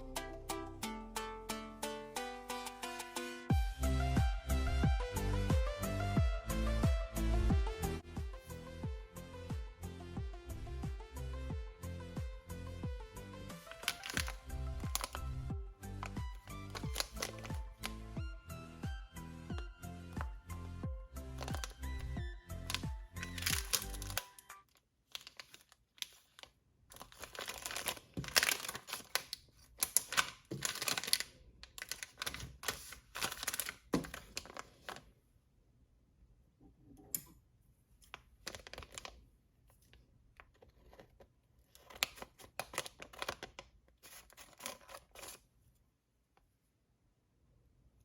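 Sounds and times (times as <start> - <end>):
packaging crumpled and torn: 13.6 - 18.2, 21.2 - 35.0, 38.4 - 39.2, 40.8 - 45.4.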